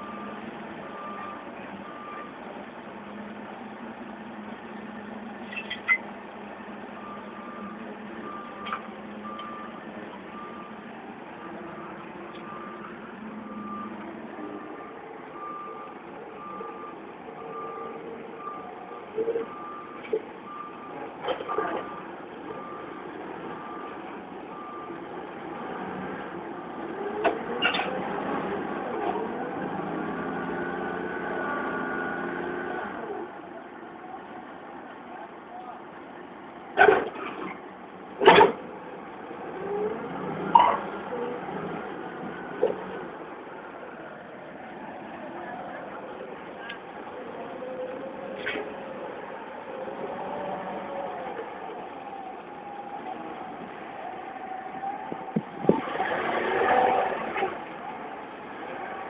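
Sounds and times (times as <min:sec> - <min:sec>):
reversing alarm beeping: 0:07.0 - 0:10.8, 0:11.4 - 0:25.0.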